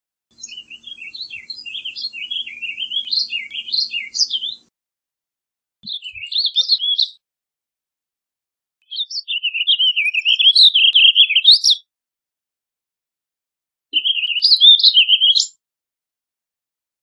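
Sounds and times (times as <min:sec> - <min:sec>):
songbird warbling: 0:00.4 - 0:04.6, 0:05.8 - 0:07.1, 0:08.9 - 0:11.8, 0:14.0 - 0:15.5.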